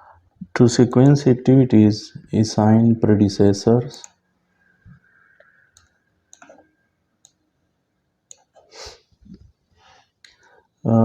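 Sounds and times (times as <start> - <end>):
computer mouse clicks: 5.4 - 7.4, 8.3 - 8.7.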